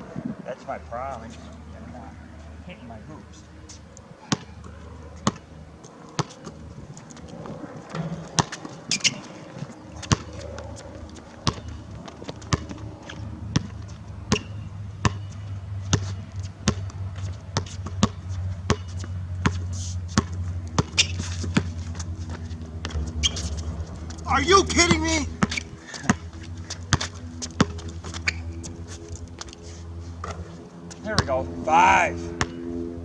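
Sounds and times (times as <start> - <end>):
low steady hum: 0.0 - 33.0
basketball bouncing on a court: 4.2 - 5.5, 7.9 - 28.6, 31.2 - 31.5, 32.4 - 32.8.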